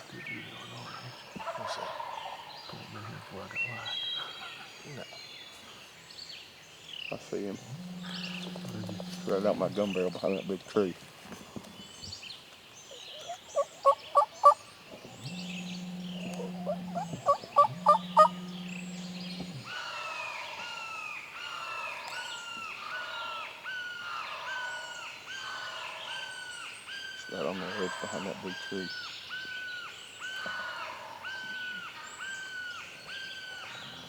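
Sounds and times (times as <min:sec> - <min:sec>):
songbirds calling: 0:00.0 - 0:34.0
steady low drone: 0:07.4 - 0:10.4, 0:14.9 - 0:19.7
turkey gobbling: 0:07.7 - 0:10.1, 0:13.1 - 0:14.6, 0:15.3 - 0:19.4, 0:27.3 - 0:28.9
bird repeating a falling call: 0:15.3 - 0:19.8.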